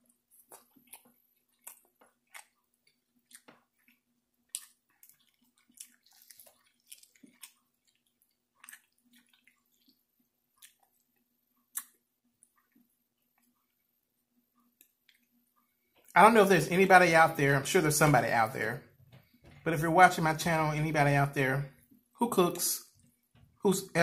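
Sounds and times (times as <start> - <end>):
person chewing: 0.0 - 13.8, 14.6 - 16.2.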